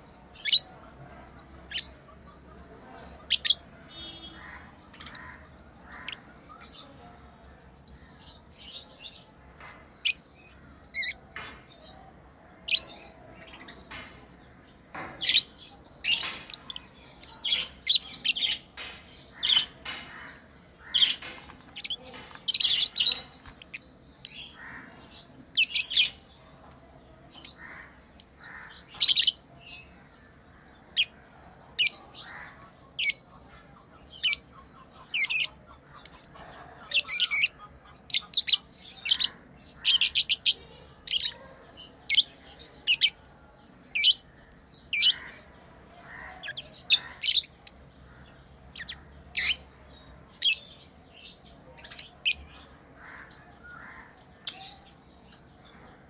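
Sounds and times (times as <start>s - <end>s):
lovebirds chirping: 0.0s - 56.0s.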